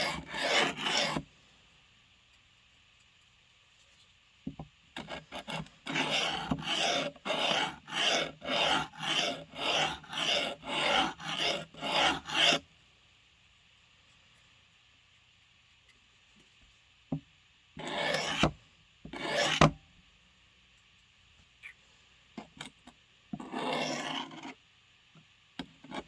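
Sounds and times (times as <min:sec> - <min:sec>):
blade scraping on sharpening stone: 0:00.0 - 0:01.2, 0:05.4 - 0:12.6.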